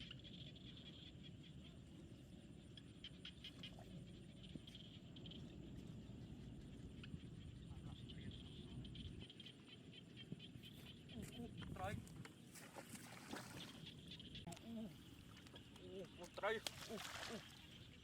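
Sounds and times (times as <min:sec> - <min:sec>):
low steady rumble: 0:00.0 - 0:12.4
frogs chirping: 0:00.0 - 0:18.0.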